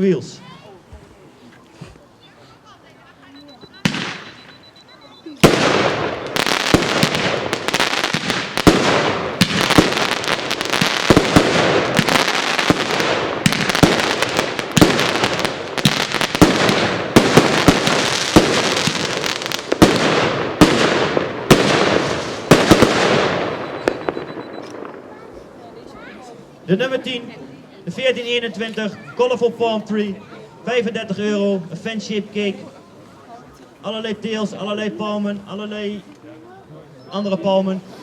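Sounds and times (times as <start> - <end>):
firework shots and bursts: 3.8 - 4.7, 5.4 - 25.1.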